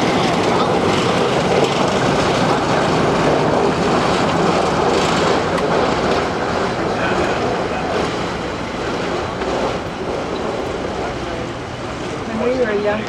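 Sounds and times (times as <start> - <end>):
moving train rumble: 0.0 - 13.0.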